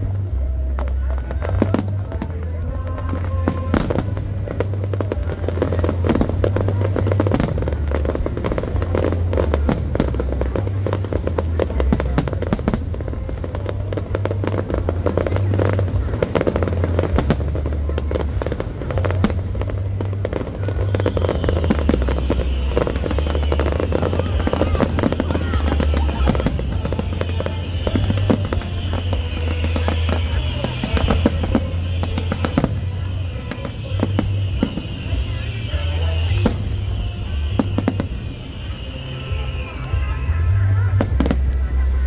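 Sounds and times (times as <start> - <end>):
fireworks bursting and crackling: 0.0 - 42.0.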